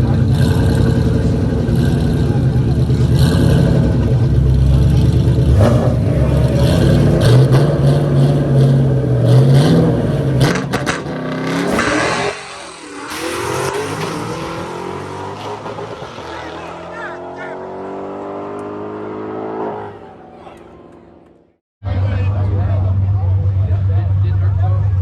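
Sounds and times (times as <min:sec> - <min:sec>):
engine revving: 0:00.0 - 0:25.0
loud car engine running: 0:00.0 - 0:25.0.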